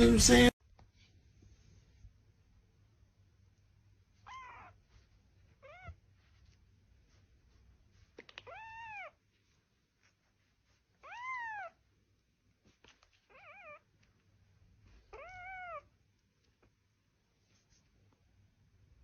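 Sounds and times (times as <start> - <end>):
cat meowing: 4.2 - 4.8, 5.6 - 6.0, 8.4 - 9.2, 11.0 - 11.8, 13.3 - 13.9, 15.1 - 15.9.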